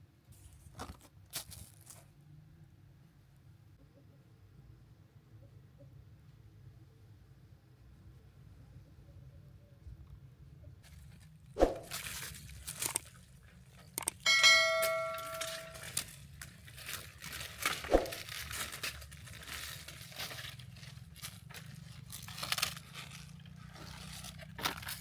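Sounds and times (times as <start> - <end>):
crinkly rustling: 0.3 - 2.2, 10.8 - 25.0
metal pot struck and ringing: 14.3 - 15.9.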